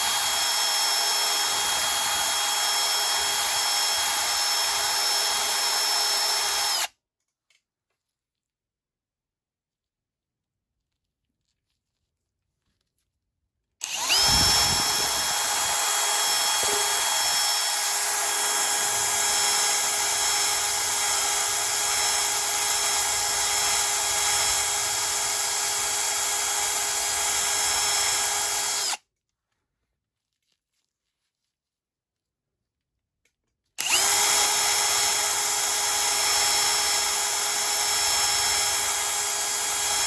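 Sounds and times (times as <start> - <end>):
electric power tool whining: 0.0 - 6.9, 13.8 - 29.0, 33.8 - 40.0.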